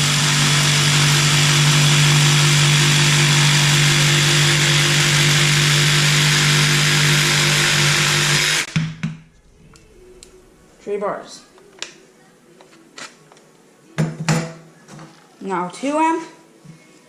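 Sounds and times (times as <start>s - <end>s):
jigsaw cutting wood: 0.0s - 8.7s.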